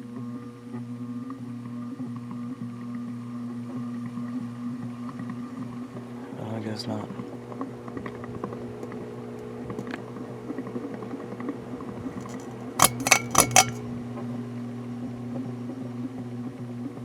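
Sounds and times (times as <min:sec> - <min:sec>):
sharp clinks: 0:12.2 - 0:13.8.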